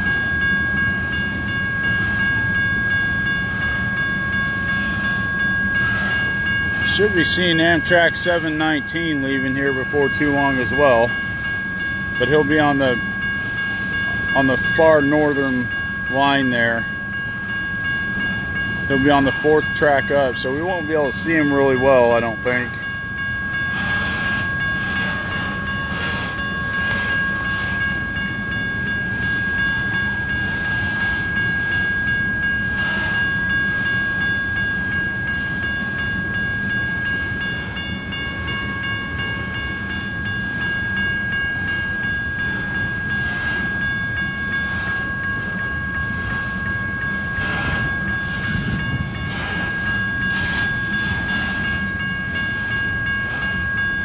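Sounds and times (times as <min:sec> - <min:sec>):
crossing signal bell ringing: 0:00.0 - 0:54.0
freight train rumbling: 0:00.0 - 0:54.0.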